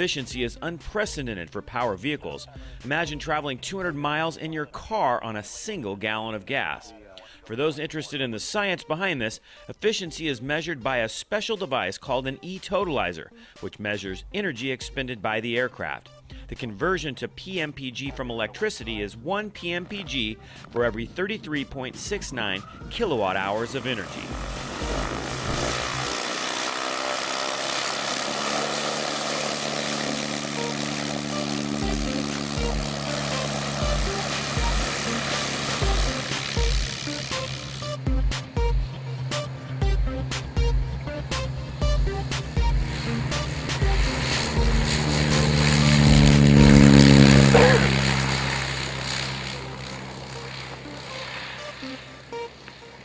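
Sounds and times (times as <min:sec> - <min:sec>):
propeller aircraft drone: 0:00.0 - 0:05.3, 0:18.1 - 0:53.0
rushing noise: 0:23.7 - 0:31.4
hum: 0:23.7 - 0:53.0.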